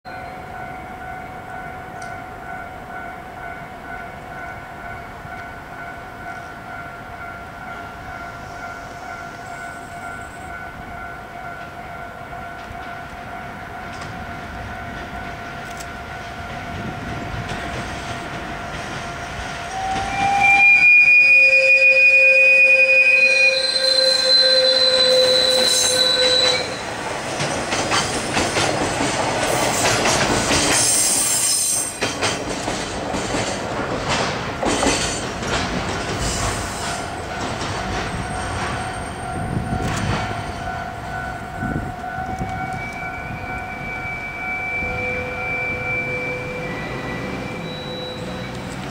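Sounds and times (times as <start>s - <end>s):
train wagons clickety-clack: 0.6s - 44.1s, 46.0s - 48.9s
wheels squealing on rail: 19.3s - 32.4s, 36.1s - 48.9s.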